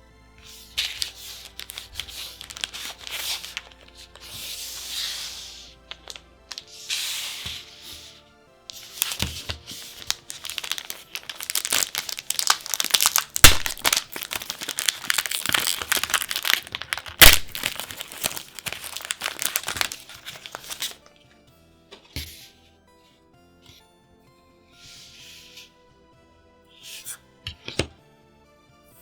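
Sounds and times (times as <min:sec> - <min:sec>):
card wrapper crinkling and tearing: 0:00.4 - 0:08.1, 0:08.7 - 0:21.0
sharp wrapper snaps: 0:00.9 - 0:04.3, 0:09.9 - 0:21.0.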